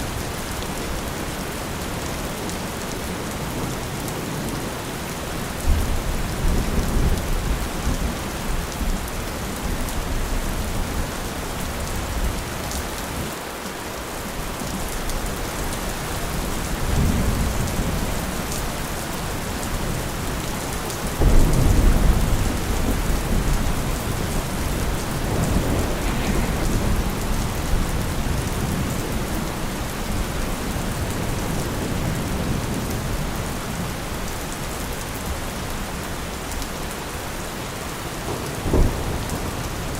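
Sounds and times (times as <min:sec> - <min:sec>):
steady rain: 0:00.0 - 0:39.9
thunder rolling: 0:14.7 - 0:36.6, 0:37.8 - 0:39.9.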